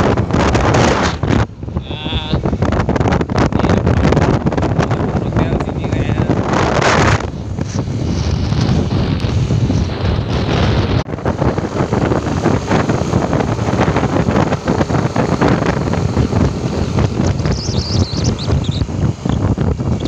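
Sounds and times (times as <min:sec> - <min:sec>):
vehicle engine and road noise: 0:00.0 - 0:20.0
wind buffeting microphone: 0:00.0 - 0:20.0
faint high chirps: 0:17.2 - 0:19.4.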